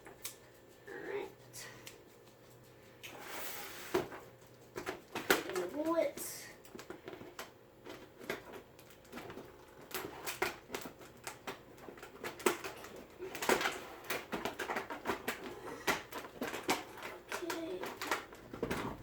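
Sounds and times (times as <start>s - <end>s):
packaging clicks and rustling: 6.6s - 19.0s.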